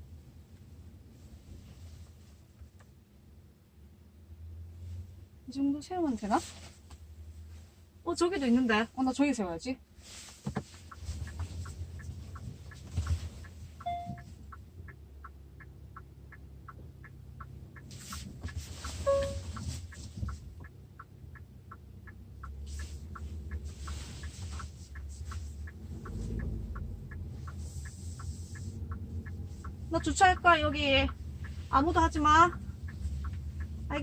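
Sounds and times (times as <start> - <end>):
turn signal ticking: 0.0 - 34.0
car engine idling: 9.8 - 34.0.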